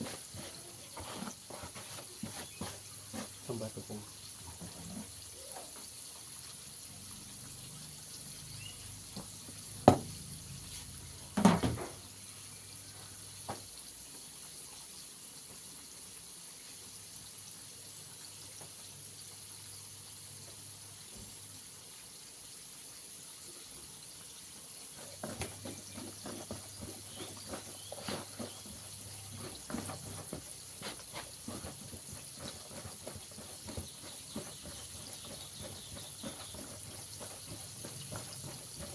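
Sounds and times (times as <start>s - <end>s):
chicken rubbed in flour: 0.0s - 4.0s, 24.8s - 38.9s
sharp knocks: 9.8s - 10.2s.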